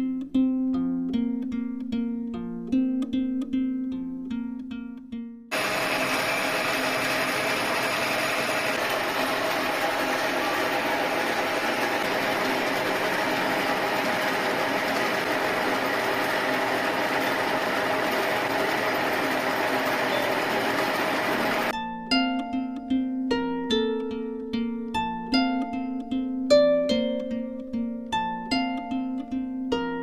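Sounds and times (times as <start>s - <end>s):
workshop machine running: 5.5s - 21.8s.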